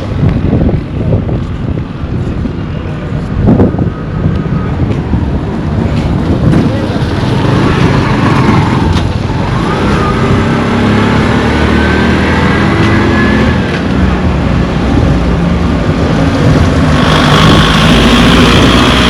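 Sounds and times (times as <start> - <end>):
wind rumble on microphone: 0.0 - 19.0
vehicle engine running: 15.8 - 19.0.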